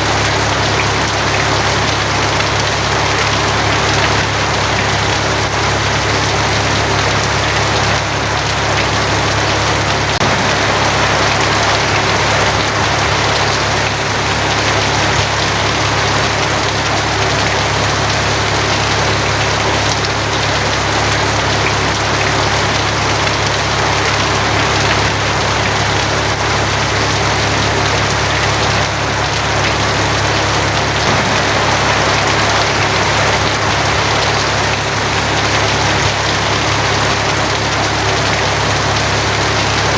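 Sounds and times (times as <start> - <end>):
rain on a tin roof: 0.0 - 39.9
low hum: 31.0 - 35.8.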